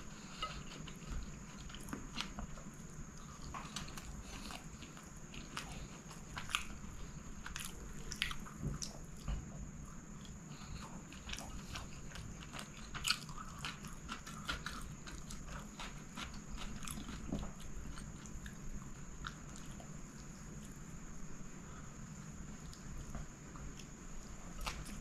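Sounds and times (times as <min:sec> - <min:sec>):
close chewing with wet mouth clicks: 0:03.2 - 0:09.0, 0:10.2 - 0:20.7.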